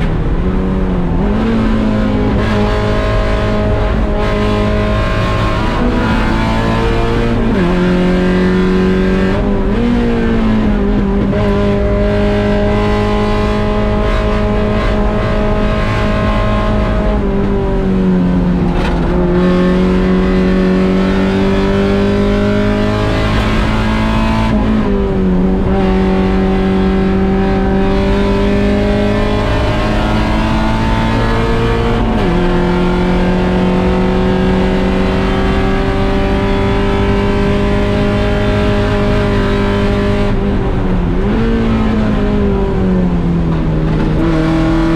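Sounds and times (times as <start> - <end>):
car engine revving under load: 0.0 - 44.9.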